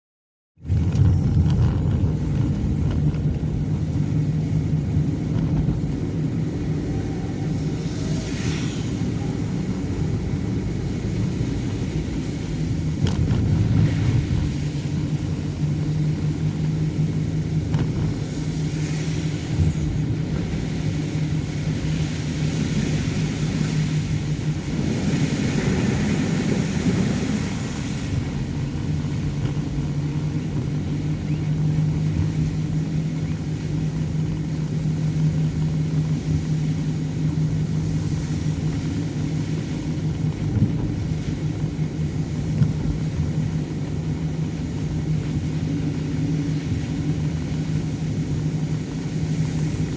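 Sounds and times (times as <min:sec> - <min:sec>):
car engine hum: 0:00.6 - 0:49.9
tyres hissing on wet road: 0:06.6 - 0:12.7, 0:21.0 - 0:28.8.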